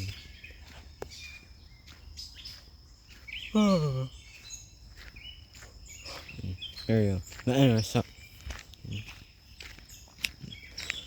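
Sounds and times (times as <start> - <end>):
faint bird chirps: 0.0 - 11.0
insect drone: 0.0 - 11.0
person humming: 3.5 - 4.1.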